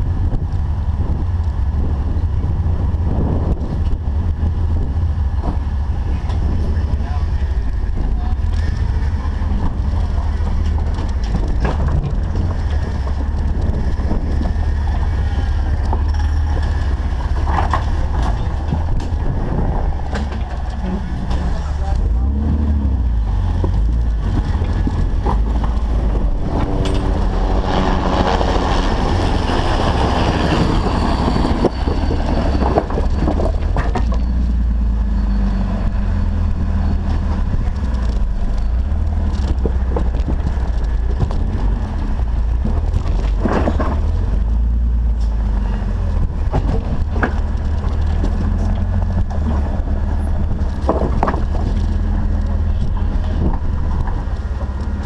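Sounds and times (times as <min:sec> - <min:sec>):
rushing noise: 0:00.0 - 0:39.3
knocks and clicks: 0:23.5 - 0:27.5.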